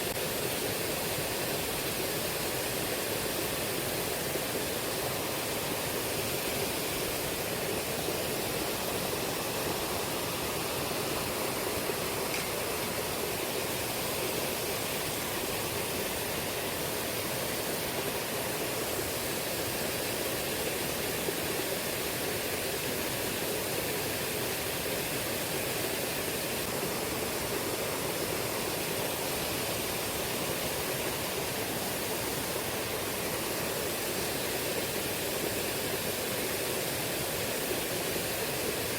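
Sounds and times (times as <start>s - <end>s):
river current rushing: 0.0s - 38.9s.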